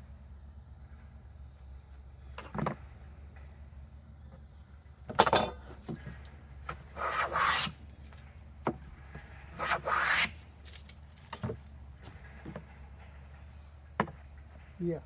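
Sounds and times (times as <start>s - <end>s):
hand plane rasping on wood: 6.7s - 7.8s, 9.6s - 10.4s.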